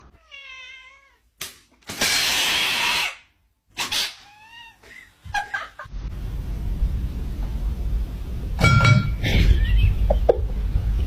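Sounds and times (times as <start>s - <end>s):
cat hissing: 1.9s - 4.9s.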